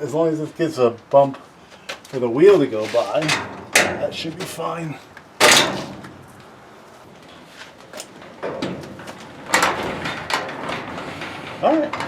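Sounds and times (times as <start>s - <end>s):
garage door rollers rattling: 8.0s - 12.0s.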